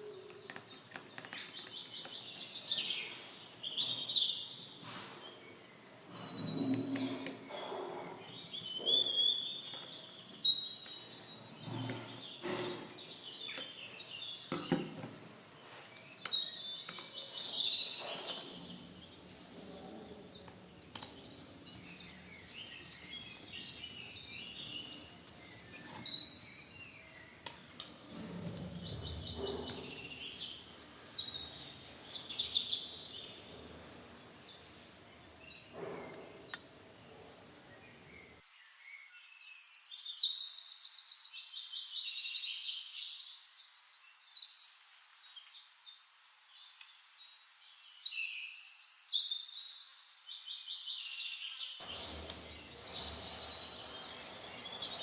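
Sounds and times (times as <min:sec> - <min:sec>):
birds chirping: 0:00.0 - 0:38.4, 0:51.8 - 0:55.0
scattered clicks and knocks: 0:51.8 - 0:55.0.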